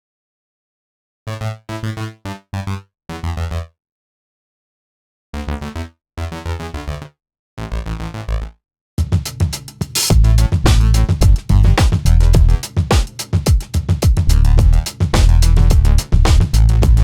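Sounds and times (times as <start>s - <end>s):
electronic synthesizer music: 10.1s - 12.8s, 14.3s - 17.0s.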